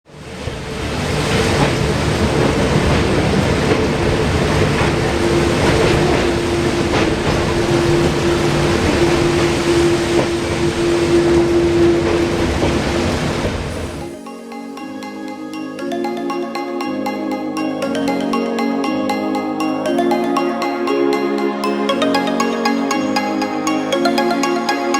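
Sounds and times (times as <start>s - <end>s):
train wheels rumbling on rail: 0.2s - 14.0s.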